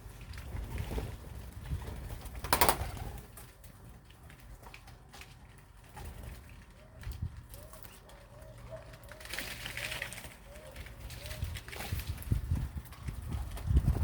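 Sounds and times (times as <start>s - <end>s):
pigeons cooing: 6.8s - 12.0s.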